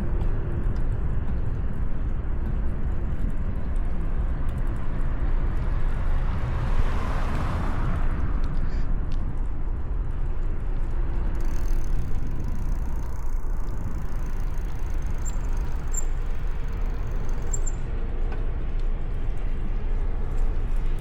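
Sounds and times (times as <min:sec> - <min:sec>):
background traffic: 0:00.0 - 0:21.0
wind and road noise on microphone: 0:00.0 - 0:21.0.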